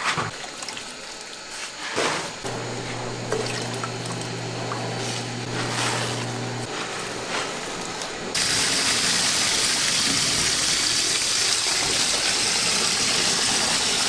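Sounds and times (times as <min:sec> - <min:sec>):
water gushing: 0:08.3 - 0:14.0.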